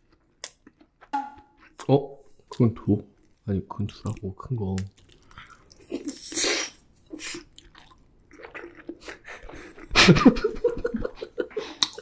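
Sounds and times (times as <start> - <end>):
wet chewing clicks: 0.1 - 6.2.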